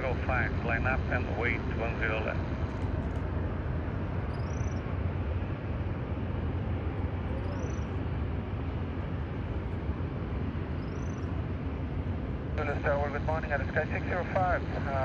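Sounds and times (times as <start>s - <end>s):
low rumble with hiss: 0.0s - 15.0s.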